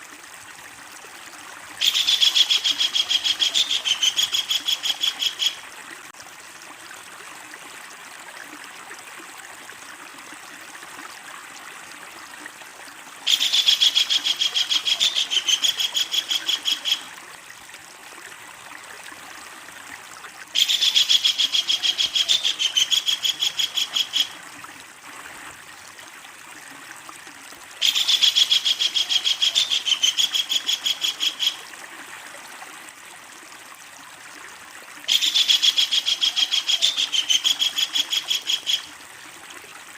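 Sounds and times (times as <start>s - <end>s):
kingfisher chattering call: 1.8s - 5.6s, 13.3s - 17.1s, 20.6s - 24.4s, 27.8s - 31.6s, 35.1s - 38.9s.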